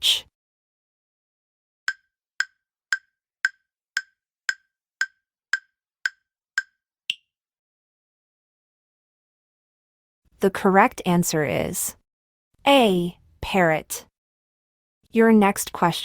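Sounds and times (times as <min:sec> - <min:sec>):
countdown timer ticking: 0:01.9 - 0:06.8.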